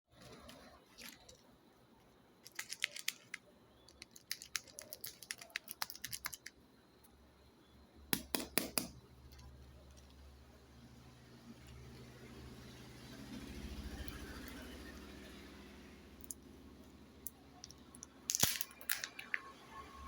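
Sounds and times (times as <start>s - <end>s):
candy wrapper crinkling: 2.5s - 6.5s, 18.2s - 19.4s
wrapper snaps: 18.3s - 19.4s.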